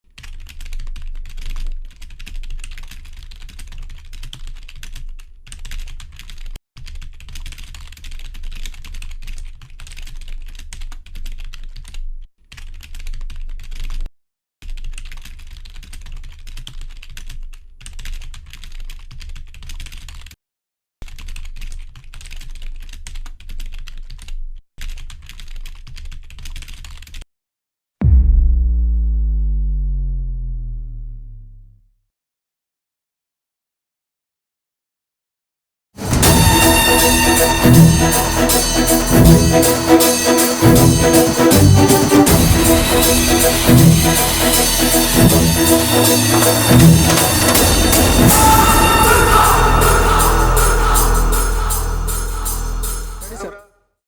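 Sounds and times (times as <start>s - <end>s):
rapid keyboard typing: 0.1s - 20.3s, 21.0s - 27.2s
low boom sliding down in pitch: 28.0s - 31.8s, 41.8s - 53.2s.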